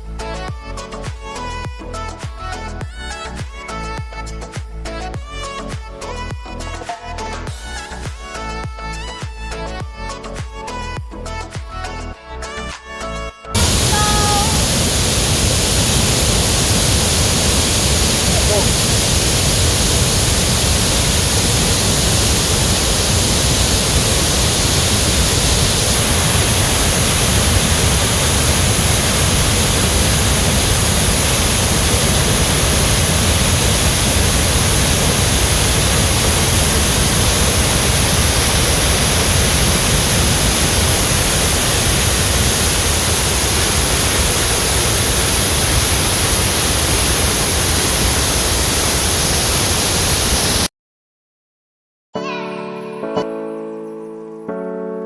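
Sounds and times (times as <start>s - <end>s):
waterfall rushing: 13.6s - 50.7s.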